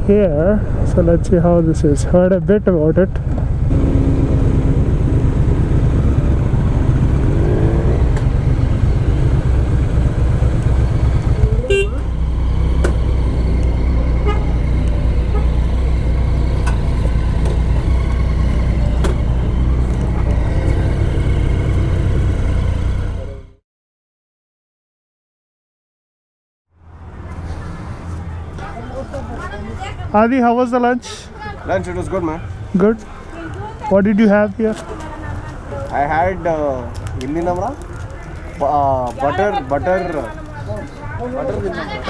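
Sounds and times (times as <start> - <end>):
motorcycle engine rumbling: 0.0 - 23.6
short horn toot: 11.6 - 12.1, 14.2 - 14.6.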